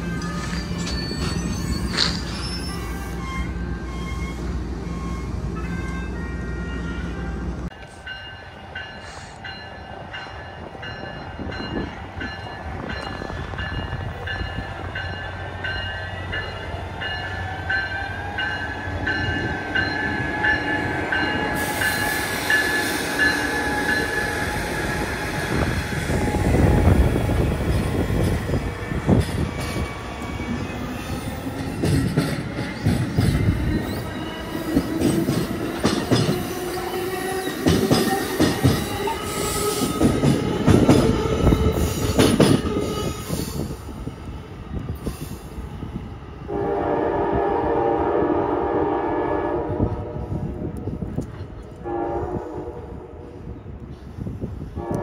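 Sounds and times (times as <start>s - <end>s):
train rumble: 0.0s - 55.0s
train wheels clicking over rail joints: 27.7s - 43.7s.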